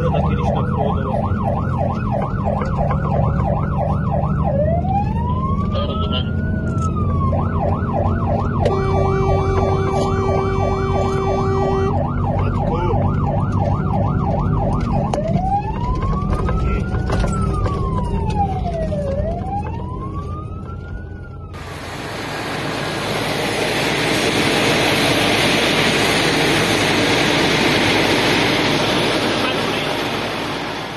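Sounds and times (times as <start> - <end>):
fire engine siren: 0.0 - 30.9
truck engine rumbling: 0.0 - 30.9
fire engine horn: 7.4 - 15.6
loud rushing noise: 21.6 - 30.9.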